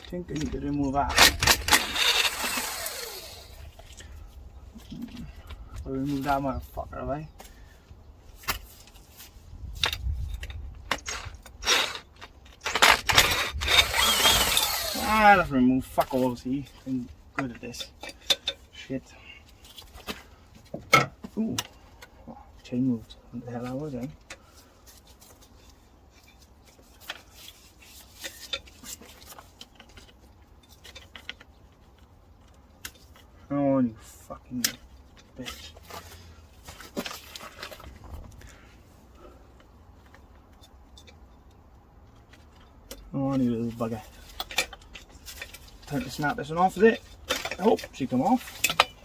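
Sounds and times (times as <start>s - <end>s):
metal tools clinking and scraping: 0.0s - 4.0s, 17.4s - 18.7s, 34.6s - 38.0s, 42.2s - 49.0s.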